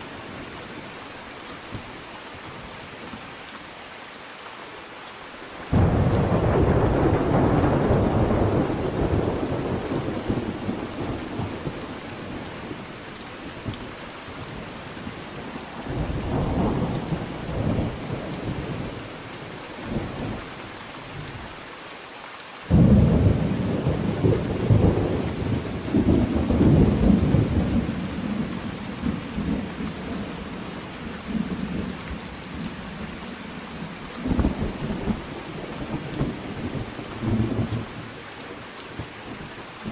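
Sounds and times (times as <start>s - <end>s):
steady rain falling: 0.0s - 39.9s
rolling thunder: 5.7s - 12.8s, 22.7s - 30.6s.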